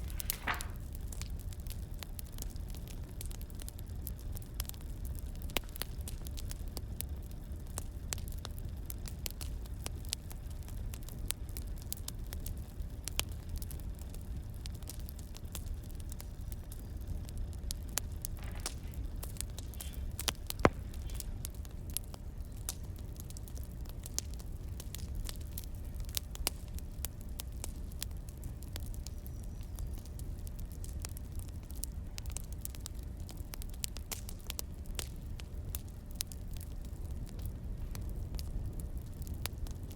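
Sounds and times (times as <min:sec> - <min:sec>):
sharp loud fire pop: 0:00.0 - 0:00.8, 0:19.6 - 0:21.3
wood fire crackling: 0:00.0 - 0:39.9.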